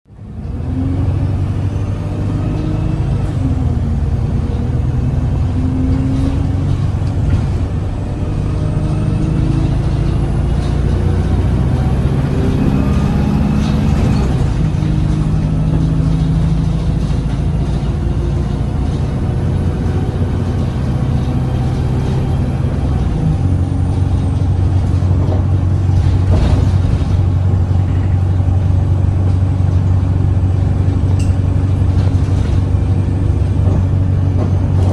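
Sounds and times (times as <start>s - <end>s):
bus body rattles: 0.1s - 34.9s
bus diesel engine pulling: 0.1s - 34.9s.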